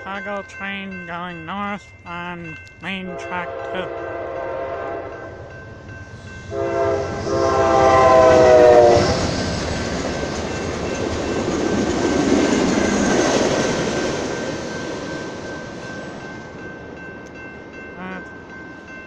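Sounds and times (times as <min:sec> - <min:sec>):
crossing bell ringing: 0:00.0 - 0:08.8, 0:09.8 - 0:19.0
train rumble and wheel clatter: 0:00.0 - 0:19.0
locomotive horn blast: 0:03.1 - 0:05.3, 0:06.5 - 0:09.2.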